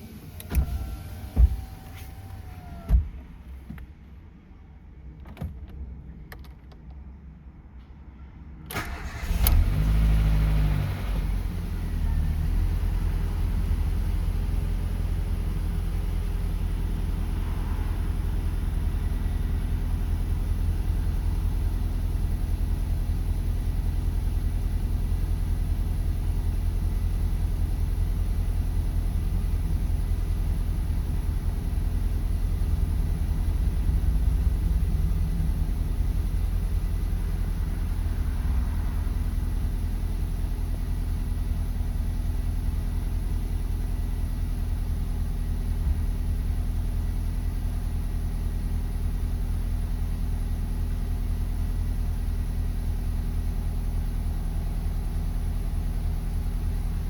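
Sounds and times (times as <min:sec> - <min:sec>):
car engine revving and idling: 0:00.0 - 0:03.6, 0:08.8 - 0:57.0
engine cranking: 0:08.7 - 0:09.7.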